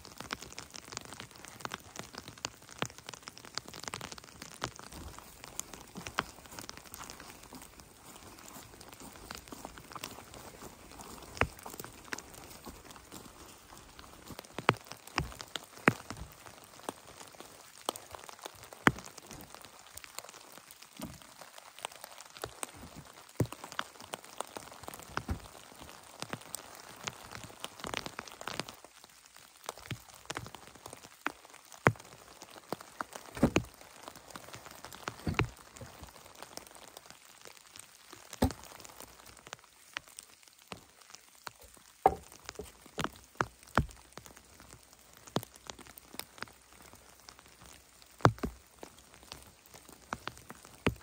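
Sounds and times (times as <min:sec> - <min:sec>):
faint rain hiss: 0:00.0 - 0:51.0
heavy raindrops striking surface: 0:00.0 - 0:51.0.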